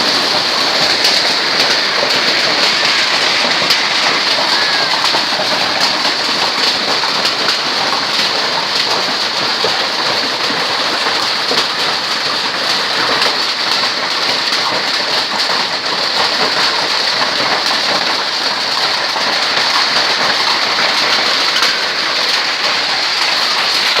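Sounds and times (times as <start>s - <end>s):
hail and heavy rain falling: 0.0s - 24.0s.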